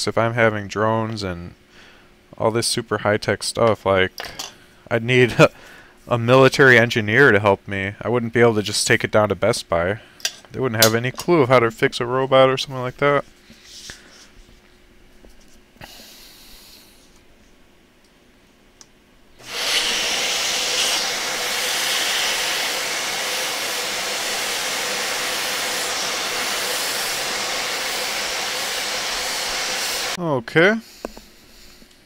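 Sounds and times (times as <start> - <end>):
steady hiss: 19.4 - 32.0.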